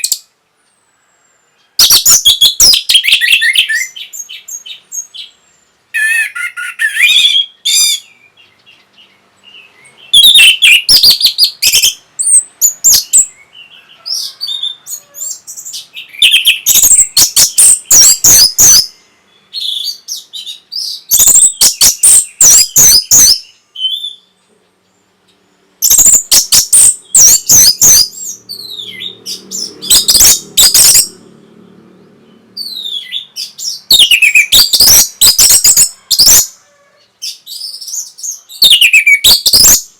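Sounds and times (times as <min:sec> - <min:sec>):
thrush singing: 0:25.8 - 0:36.4.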